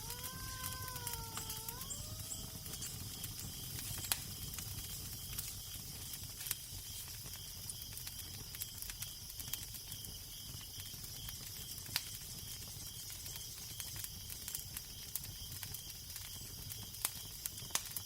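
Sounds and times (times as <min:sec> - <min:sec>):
wavering moan-like tone: 0:00.0 - 0:02.5
crickets chirping: 0:00.0 - 0:17.4
fire crackling and popping: 0:00.0 - 0:18.0.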